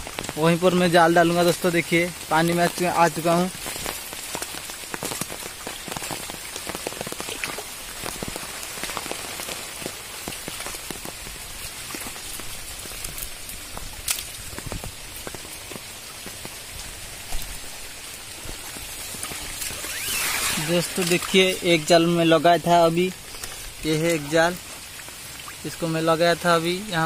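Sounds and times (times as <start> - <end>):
rain falling on floodwater: 0.0 - 27.0.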